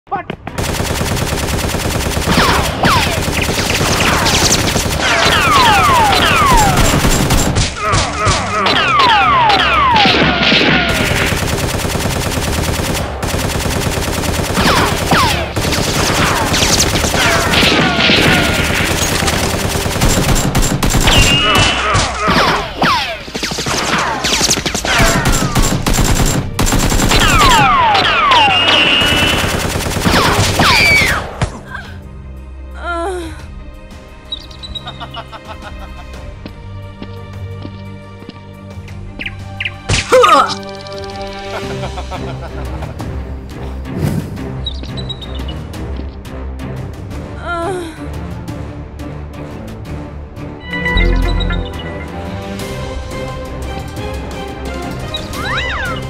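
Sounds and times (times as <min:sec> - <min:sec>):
automatic gunfire: 0:00.6 - 0:07.7, 0:09.9 - 0:22.5, 0:23.4 - 0:31.2
machine-gun fire: 0:00.6 - 0:07.8, 0:09.9 - 0:22.6, 0:23.4 - 0:31.2
falling whistles: 0:28.2 - 0:29.4.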